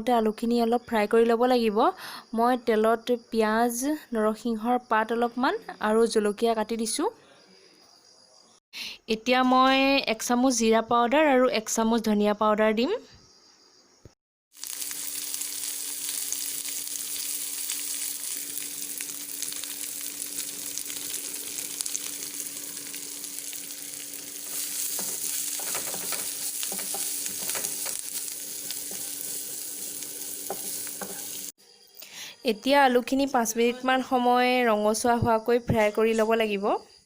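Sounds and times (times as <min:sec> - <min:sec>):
potatoes sizzling in hot oil: 0:14.5 - 0:31.6
spatula scraping a pan: 0:24.4 - 0:31.5.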